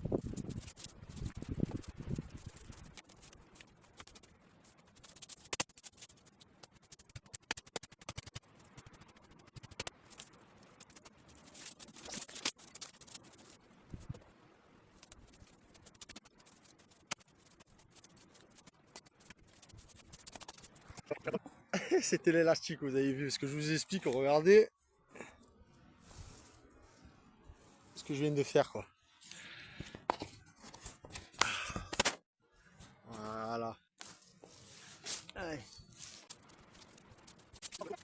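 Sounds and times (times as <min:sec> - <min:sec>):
scratching and rustling: 0:00.0 - 0:32.1, 0:32.7 - 0:38.0.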